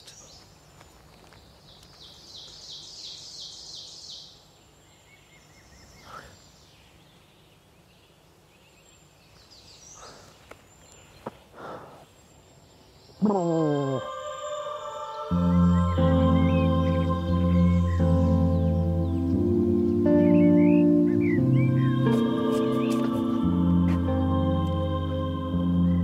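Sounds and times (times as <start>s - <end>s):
faint bird calls: 5.0s - 23.5s.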